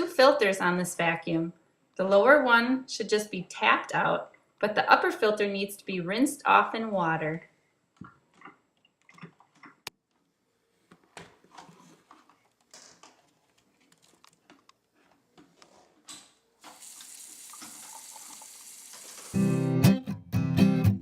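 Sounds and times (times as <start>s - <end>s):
tap water running: 16.6s - 19.5s
strummed acoustic guitar music: 19.3s - 21.0s.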